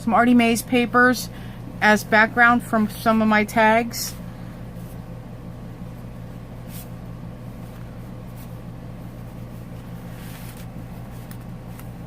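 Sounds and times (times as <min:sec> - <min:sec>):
low electrical hum: 0:00.0 - 0:12.0
paper pages rustling: 0:09.2 - 0:12.0.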